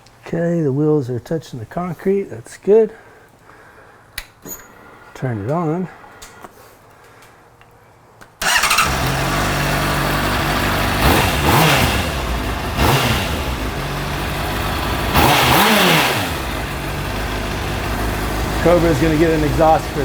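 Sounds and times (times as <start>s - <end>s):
engine throttle blips: 8.4s - 20.0s
motorcycle engine idling: 8.4s - 20.0s.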